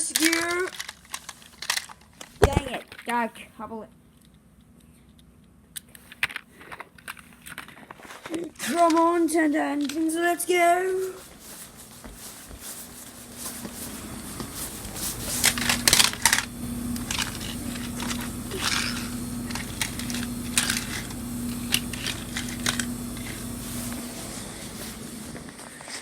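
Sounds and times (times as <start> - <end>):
toy train motor humming: 0.0 - 2.4, 8.3 - 11.7, 12.7 - 26.0
plastic parts clicking and clattering: 0.0 - 3.2, 5.1 - 10.3, 15.0 - 23.4.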